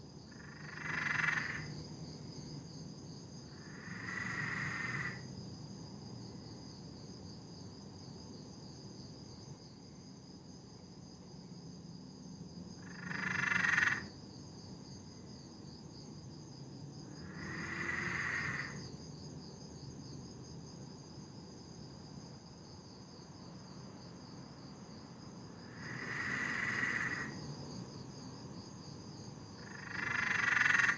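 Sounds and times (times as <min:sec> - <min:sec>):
high insect drone: 0:00.0 - 0:30.9
tree frog cackling calls: 0:00.3 - 0:01.7, 0:03.5 - 0:05.2, 0:12.8 - 0:14.1, 0:17.2 - 0:18.8, 0:25.6 - 0:27.4, 0:29.6 - 0:30.9.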